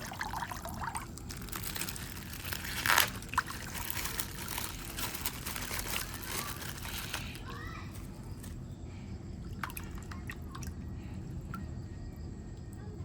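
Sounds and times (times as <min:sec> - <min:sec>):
plastic bag rustling and crinkling: 0:00.0 - 0:08.6.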